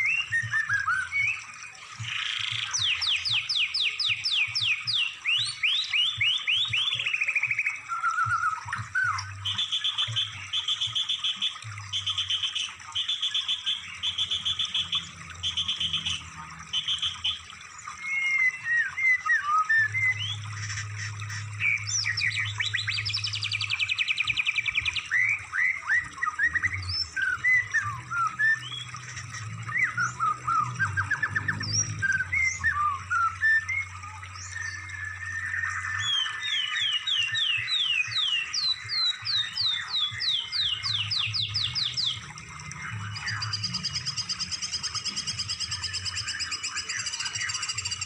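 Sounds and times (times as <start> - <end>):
songbird trilling and chirping: 34.4 - 42.2.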